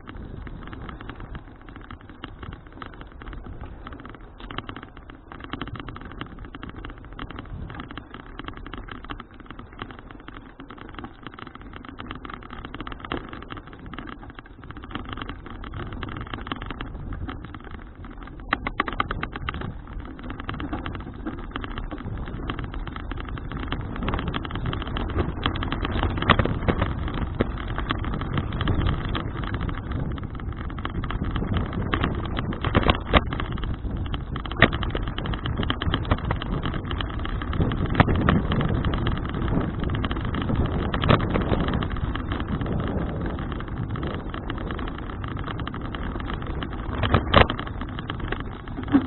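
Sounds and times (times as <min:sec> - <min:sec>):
bicycle road noise: 0:00.0 - 0:49.0
wind on microphone: 0:12.1 - 0:49.0.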